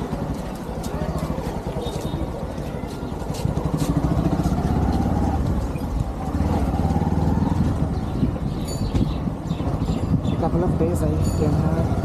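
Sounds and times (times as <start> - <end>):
motorcycle engine accelerating: 3.4 - 12.0.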